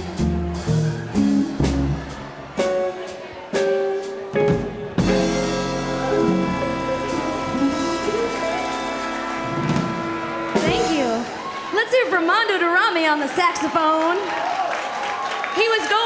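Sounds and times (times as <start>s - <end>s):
swing band playing: 0.0s - 12.0s
drum hits: 4.4s - 11.6s.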